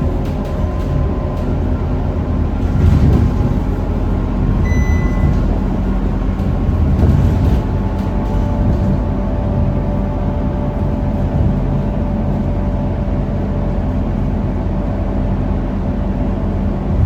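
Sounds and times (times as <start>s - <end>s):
bus diesel engine running: 0.0s - 17.0s
high beep: 4.6s - 5.4s.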